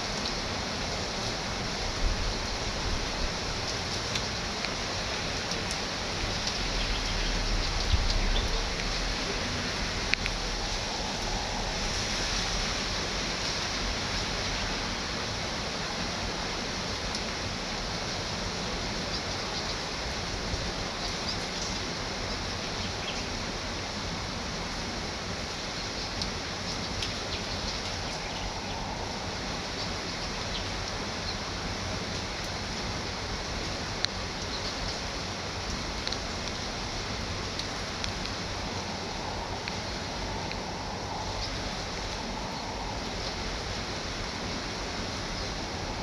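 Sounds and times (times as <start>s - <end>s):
heavy rain with wind: 0.0s - 46.0s.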